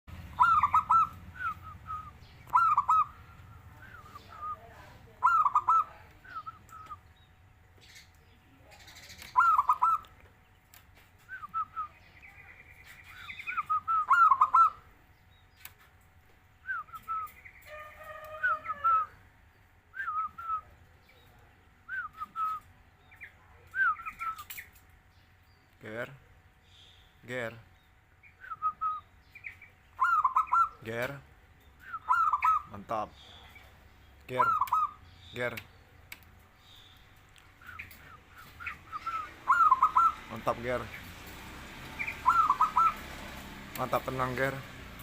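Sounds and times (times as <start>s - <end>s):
dove cooing: 0.3s - 6.9s, 8.8s - 10.0s, 13.6s - 14.9s, 30.0s - 30.8s, 31.8s - 32.7s, 34.3s - 35.0s, 37.6s - 40.6s, 41.8s - 43.3s.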